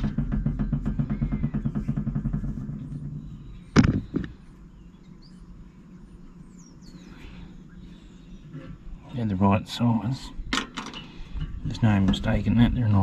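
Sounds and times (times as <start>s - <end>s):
sharp knocks: 0.0s - 4.4s
vehicle engine running: 0.0s - 4.5s
faint birdsong: 0.0s - 13.0s.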